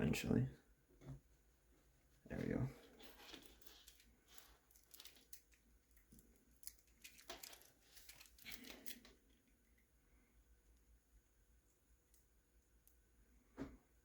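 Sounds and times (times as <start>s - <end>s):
plastic parts clicking and rustling: 3.0s - 9.5s.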